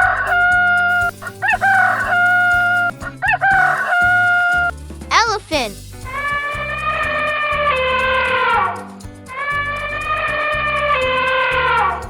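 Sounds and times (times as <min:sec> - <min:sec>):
background music: 0:00.0 - 0:09.4.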